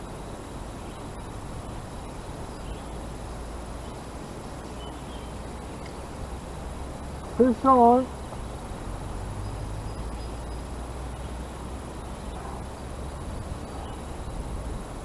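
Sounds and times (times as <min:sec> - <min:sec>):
outdoor hiss with low rumble: 0:00.0 - 0:15.0.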